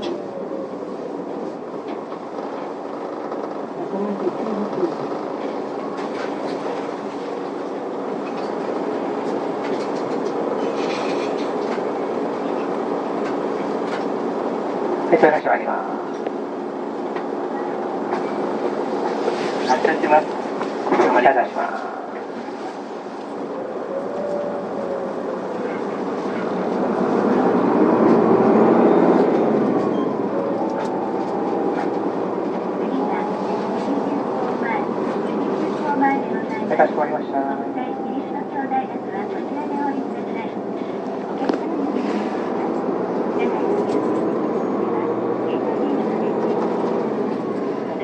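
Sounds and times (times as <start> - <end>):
bus diesel engine hum: 0.0 - 48.0.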